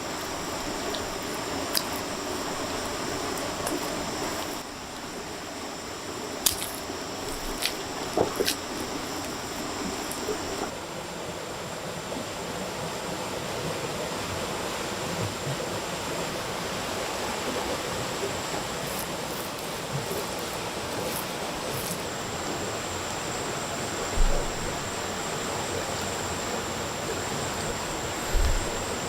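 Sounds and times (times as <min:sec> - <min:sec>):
faint high whine: 0:00.0 - 0:10.8, 0:15.4 - 0:29.0
steady rushing noise: 0:27.5 - 0:29.0.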